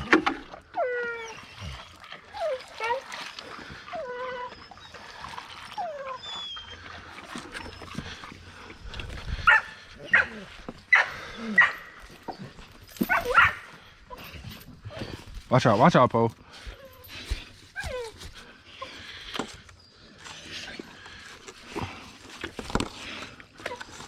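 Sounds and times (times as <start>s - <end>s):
dog whining: 0.7s - 8.2s, 9.4s - 15.2s, 16.7s - 20.4s
dog yipping and barking: 9.4s - 11.9s, 13.0s - 14.3s.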